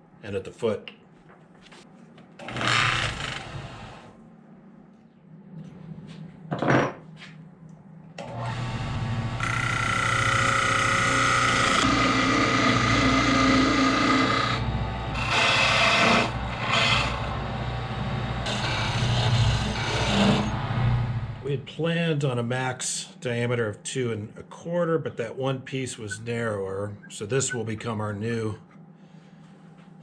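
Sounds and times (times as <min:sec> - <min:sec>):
turning tool cutting wood: 0:08.2 - 0:17.4, 0:18.4 - 0:20.8
wood lathe motor humming: 0:08.2 - 0:21.4.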